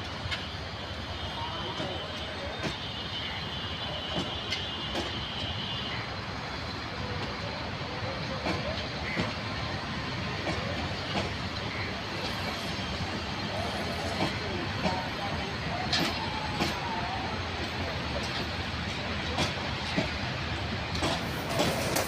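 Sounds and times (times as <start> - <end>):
train coaches rumbling past: 0.0 - 22.0
wheels clacking over rail joints: 8.3 - 22.0.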